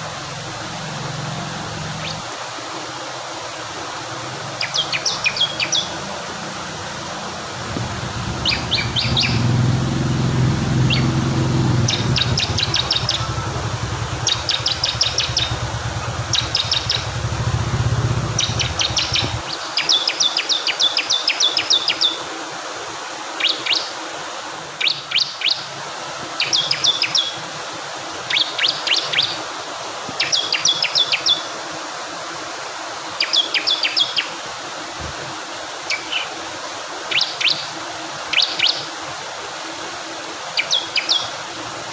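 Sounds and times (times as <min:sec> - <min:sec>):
flowing water: 0:00.0 - 0:20.8
low rumble: 0:07.5 - 0:19.4
bird singing rapid high notes: 0:07.8 - 0:19.4.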